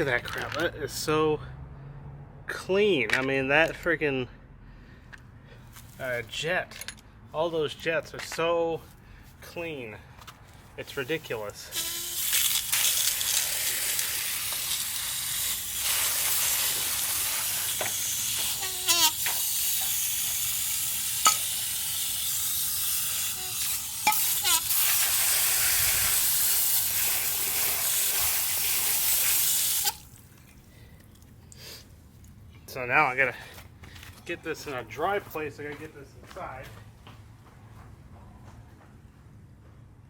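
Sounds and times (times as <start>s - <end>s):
hose water spraying: 10.9s - 31.8s.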